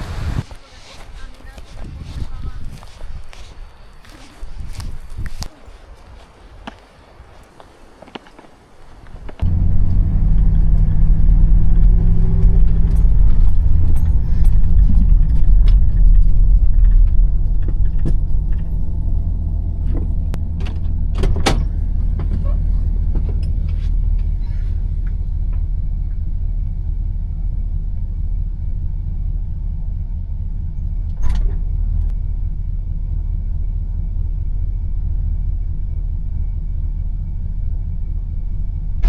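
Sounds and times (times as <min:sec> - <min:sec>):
vehicle engine starting and running: 0:00.0 - 0:00.4, 0:09.4 - 0:39.0.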